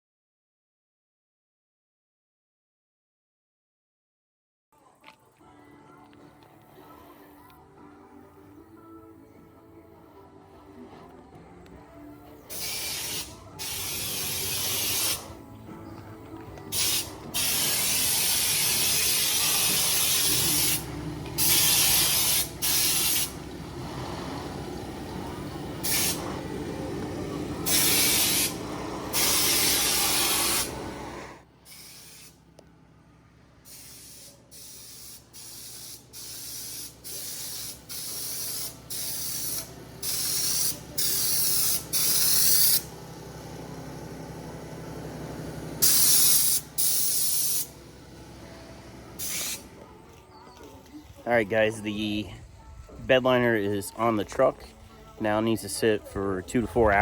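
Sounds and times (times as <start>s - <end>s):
spray gun hissing bursts: 12.5s - 15.4s, 16.7s - 32.4s, 33.7s - 44.2s, 44.9s - 49.8s
steady low hum: 15.2s - 29.4s, 47.6s - 57.0s.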